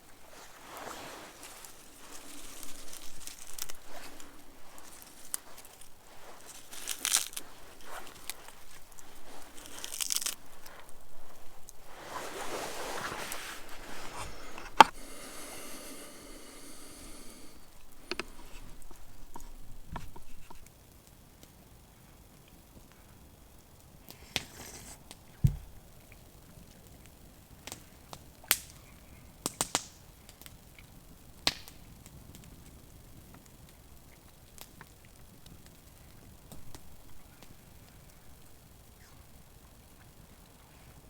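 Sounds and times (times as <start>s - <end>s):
material crinkling and rustling: 0.0s - 15.0s.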